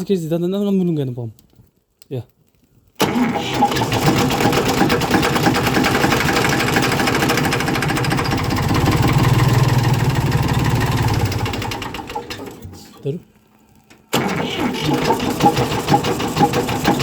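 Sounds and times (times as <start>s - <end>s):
engine clattering: 3.0s - 12.8s, 14.2s - 17.0s.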